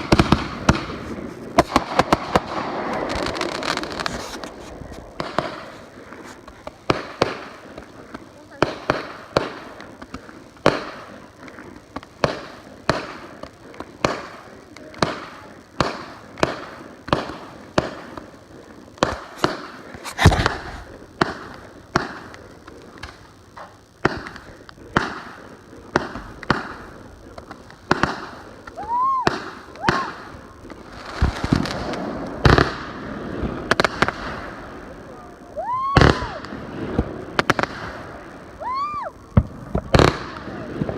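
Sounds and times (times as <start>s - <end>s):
crackling firework bangs: 0.0s - 40.9s
fireworks bangs: 0.0s - 40.9s
firework whistles: 27.9s - 32.9s, 35.5s - 36.6s, 37.6s - 40.9s.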